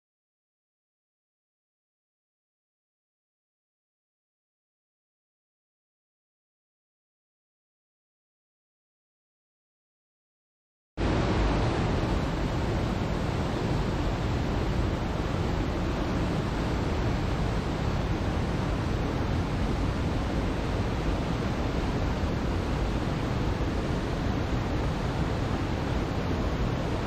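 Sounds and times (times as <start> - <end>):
steady rushing noise: 11.0 - 27.0.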